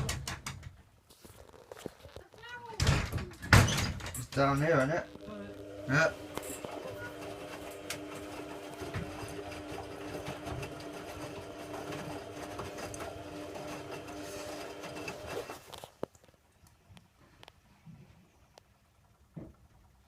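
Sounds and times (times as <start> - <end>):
small electric motor humming: 5.1 - 15.4.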